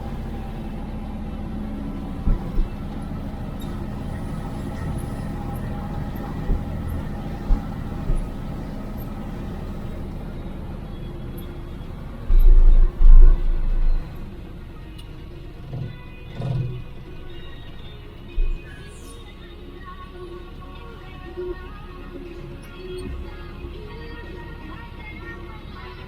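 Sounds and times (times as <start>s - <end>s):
loud low rumble: 0.0s - 10.8s, 11.6s - 14.6s
truck diesel engine running: 0.0s - 26.0s.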